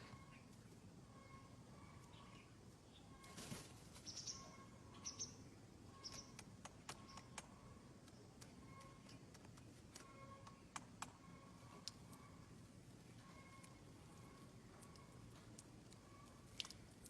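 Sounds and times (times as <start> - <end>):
faint high bird chirps: 0.0 - 6.4, 8.6 - 9.2, 13.2 - 15.2, 16.0 - 16.4.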